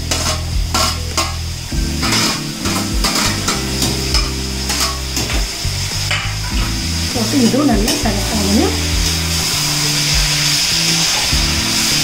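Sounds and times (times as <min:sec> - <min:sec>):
vegetables sizzling in a pan: 0:00.0 - 0:12.0
metal ladle scraping steel: 0:02.0 - 0:05.3.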